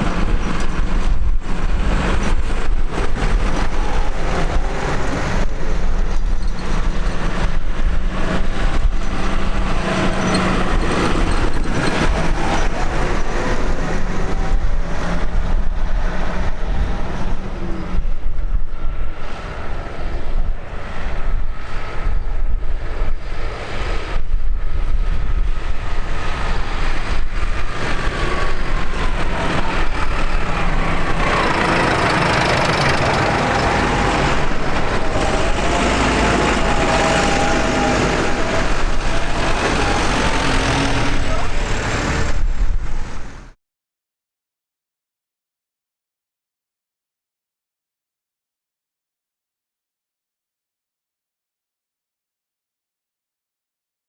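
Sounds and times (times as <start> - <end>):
tractor engines running: 0.0 - 24.2, 24.8 - 43.6.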